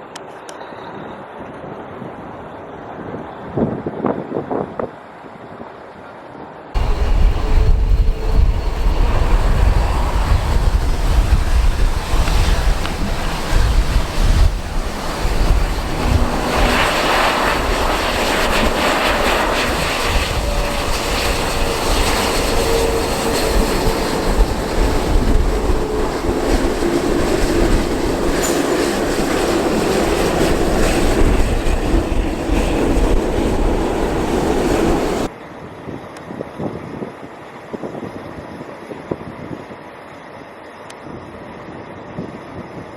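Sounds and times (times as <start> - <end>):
jet engines rumbling: 6.8 - 35.3
wind buffeting microphone: 6.8 - 39.9.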